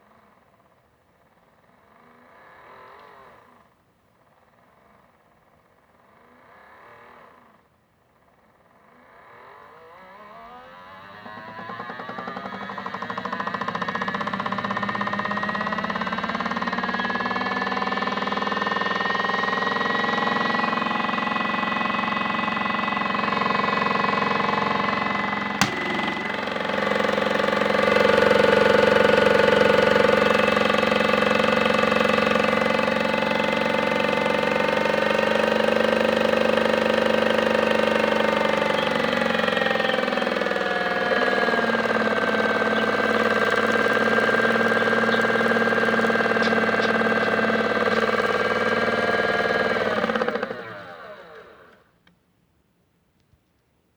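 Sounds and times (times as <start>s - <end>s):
toy washing machine motor whine: 9.5s - 51.9s
machine click: 25.6s - 26.4s.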